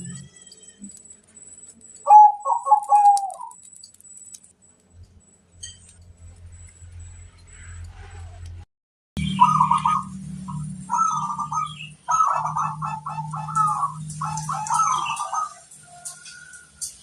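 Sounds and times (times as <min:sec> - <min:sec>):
dove cooing: 0:02.0 - 0:03.6, 0:09.2 - 0:16.7.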